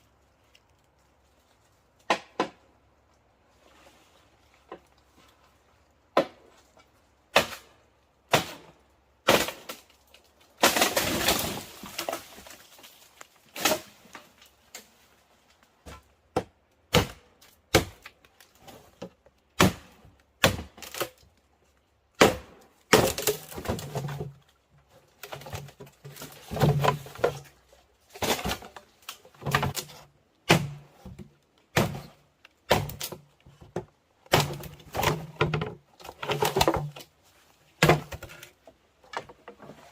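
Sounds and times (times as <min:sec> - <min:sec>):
sharp knocks and cracks: 0:02.0 - 0:02.7, 0:15.8 - 0:21.2, 0:22.2 - 0:24.4, 0:28.1 - 0:37.1, 0:37.8 - 0:39.6.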